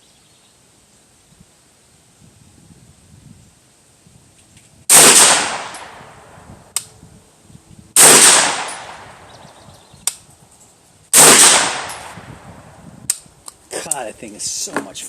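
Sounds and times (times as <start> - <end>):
carbine shots echoing: 4.9 - 6.2, 8.0 - 9.3, 11.1 - 12.3
sharp click: 6.7 - 6.9, 10.0 - 10.3, 13.0 - 14.0.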